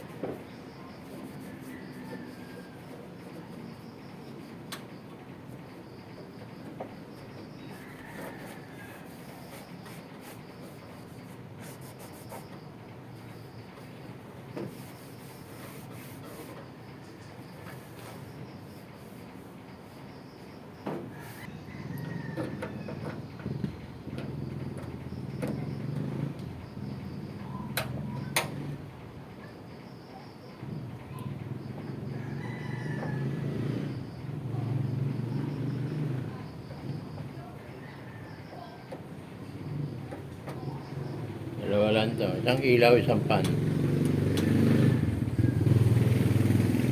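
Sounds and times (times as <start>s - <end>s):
cloth rubbing on metal: 0.0s - 3.9s, 7.7s - 12.5s, 14.6s - 16.8s
rooster crowing: 1.2s - 3.6s, 7.5s - 9.7s, 21.1s - 23.3s, 32.0s - 34.0s, 37.4s - 38.9s, 44.2s - 46.9s.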